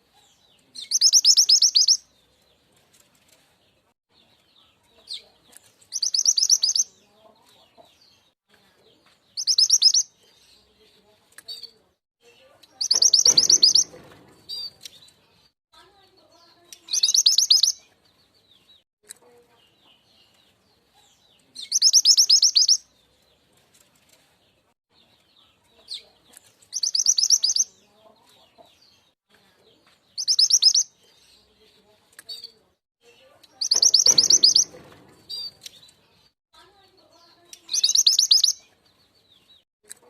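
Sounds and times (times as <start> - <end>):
faint bird chirps: 0.1 - 2.0, 4.6 - 7.6, 9.4 - 10.7, 11.5 - 15.0, 16.2 - 17.9, 19.2 - 22.9, 25.3 - 28.6, 30.1 - 31.6, 32.3 - 38.8
high-pitched bird trills: 0.9 - 2.0, 12.8 - 14.0, 16.9 - 17.8, 26.8 - 27.7, 33.6 - 35.6, 37.6 - 38.6.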